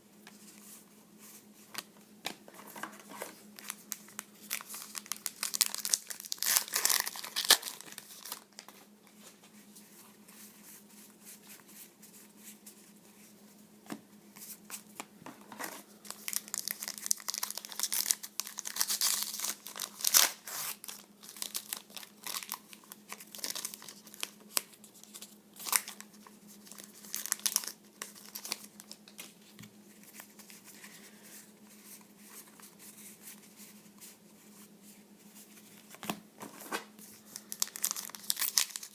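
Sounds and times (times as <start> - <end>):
faint steady hum: 0.0 - 38.9
wrappers crinkled and torn: 3.6 - 8.7, 16.0 - 29.3, 37.3 - 38.9.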